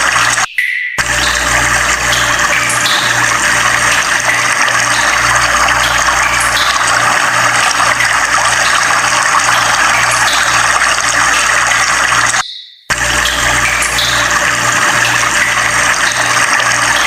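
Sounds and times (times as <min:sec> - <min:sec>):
rushing water: 0:00.0 - 0:12.4, 0:13.0 - 0:17.0.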